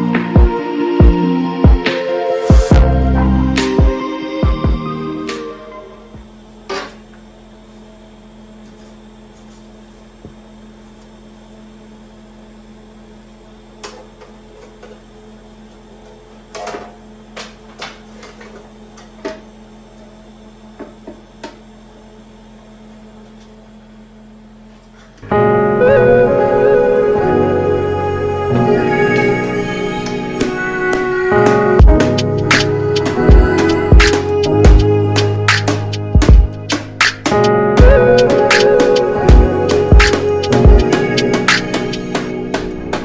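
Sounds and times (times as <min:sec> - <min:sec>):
electrical hum: 0:00.0 - 0:43.0.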